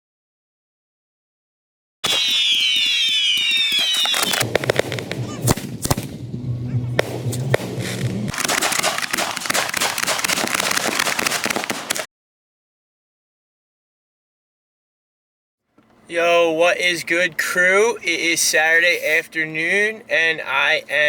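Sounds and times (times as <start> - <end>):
firework bangs: 2.0 - 12.1
firework crackling: 2.0 - 12.1
firework whistles: 2.0 - 12.1.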